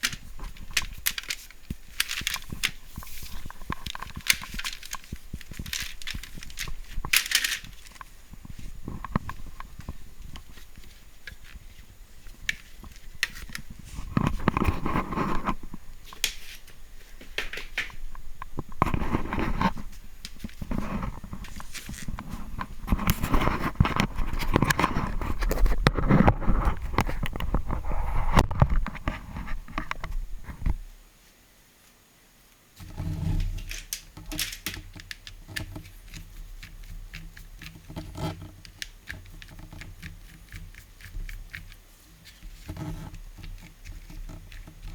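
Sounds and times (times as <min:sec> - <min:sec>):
plastic parts clicking and scraping: 0:00.0 - 0:30.8, 0:32.8 - 0:44.9
faint low hum: 0:00.0 - 0:44.9.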